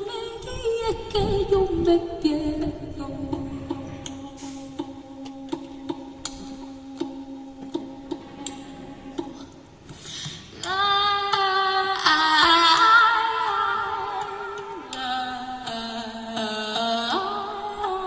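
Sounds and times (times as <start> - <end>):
woman singing long held notes: 10.6 - 18.0.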